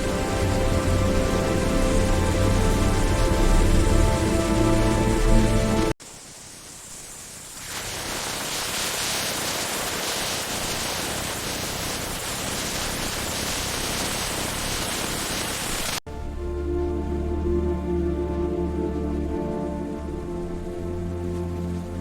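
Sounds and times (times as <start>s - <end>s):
steady static hiss: 0.0s - 16.0s.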